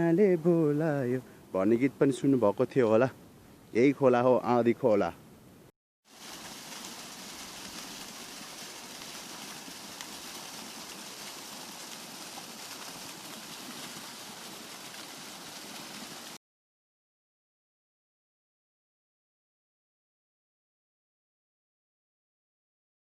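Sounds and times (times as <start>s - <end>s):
river water rushing: 6.1s - 16.4s.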